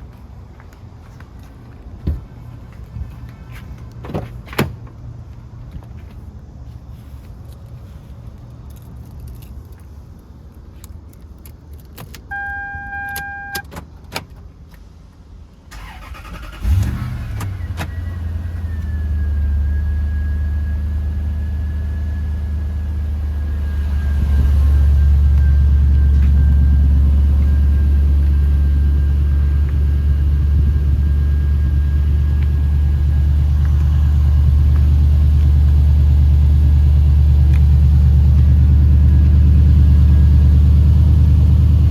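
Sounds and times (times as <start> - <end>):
short beep: 12.3 - 13.6
car engine starting and idling: 15.6 - 41.9.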